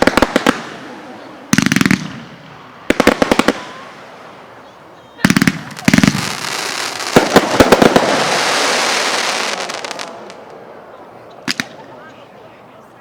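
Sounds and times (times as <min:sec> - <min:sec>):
fireworks bangs: 0:00.0 - 0:04.6, 0:05.2 - 0:10.7, 0:11.4 - 0:11.9
fireworks crackling hiss: 0:00.0 - 0:10.7
fireworks pops: 0:11.3 - 0:11.8.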